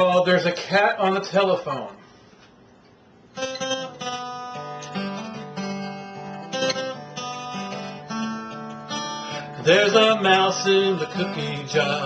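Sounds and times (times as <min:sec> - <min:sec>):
acoustic guitar strumming: 0:03.3 - 0:12.0.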